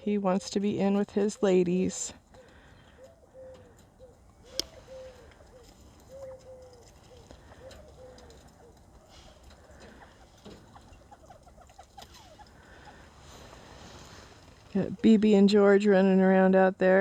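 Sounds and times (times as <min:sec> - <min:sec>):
faint clicks: 0:02.3 - 0:11.0
quail calling: 0:02.3 - 0:15.0.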